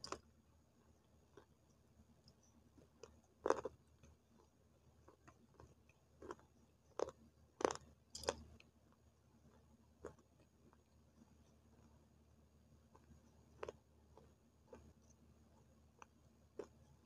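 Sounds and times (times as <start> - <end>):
crunchy biting and chewing: 2.8 - 3.8, 5.1 - 8.5, 13.0 - 15.0, 16.0 - 16.8.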